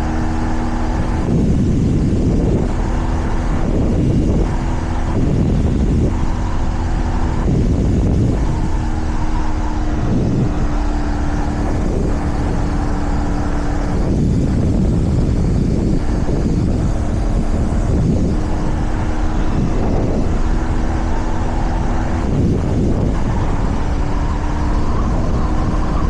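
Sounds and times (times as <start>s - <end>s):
motorcycle engine running: 0.0s - 26.0s
wind rush over microphone: 0.0s - 26.0s.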